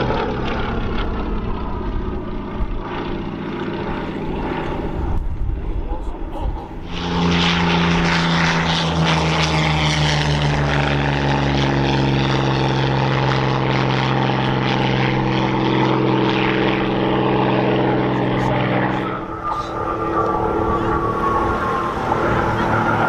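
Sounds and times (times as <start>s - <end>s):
propeller plane engine at high power: 0.0s - 23.0s.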